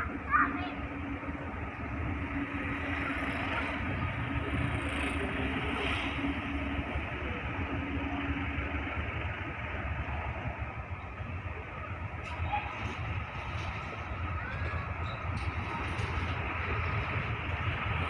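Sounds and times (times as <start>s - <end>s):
distant train rumble: 0.0s - 18.0s
faint engine hum: 0.0s - 18.0s.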